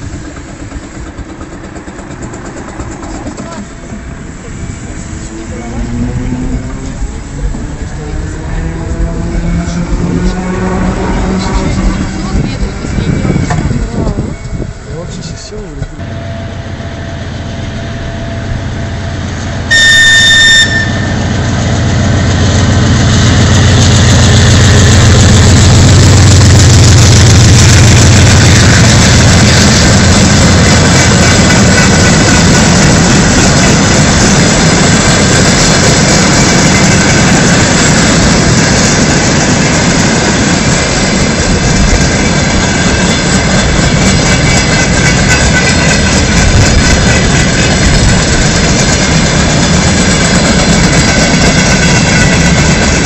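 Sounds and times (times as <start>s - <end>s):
wheel on rail clatter: 0.0s - 16.0s, 20.6s - 53.0s
locomotive engine: 0.0s - 53.0s
locomotive horn blast: 8.4s - 12.5s, 19.5s - 21.4s.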